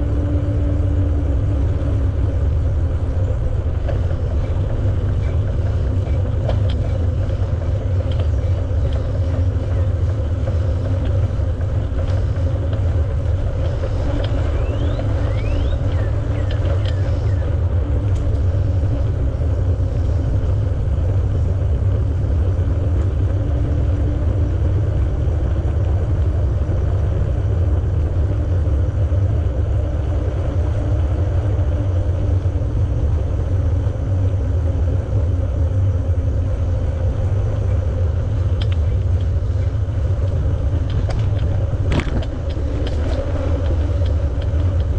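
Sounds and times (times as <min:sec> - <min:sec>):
bicycle tyres rolling on pavement: 0:00.0 - 0:44.9
wind rumble on microphone: 0:00.0 - 0:44.9.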